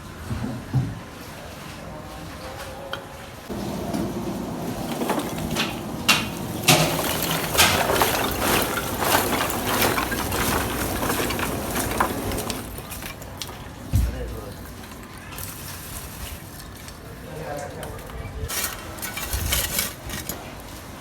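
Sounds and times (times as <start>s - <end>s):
liquid pouring and splashing: 4.7s - 13.7s.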